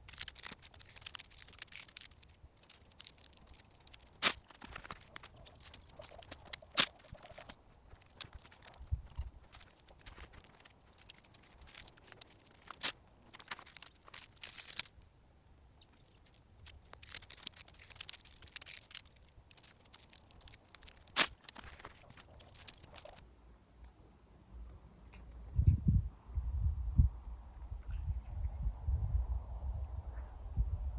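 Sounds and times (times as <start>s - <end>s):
dry leaves rustling and snapping: 0.0s - 15.0s, 15.9s - 23.2s.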